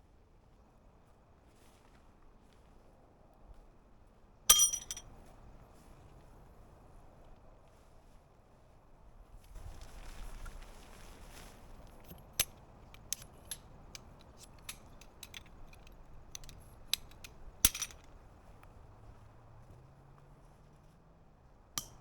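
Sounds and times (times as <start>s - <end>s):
gear clicking and clinking: 4.5s - 5.0s, 12.0s - 18.2s.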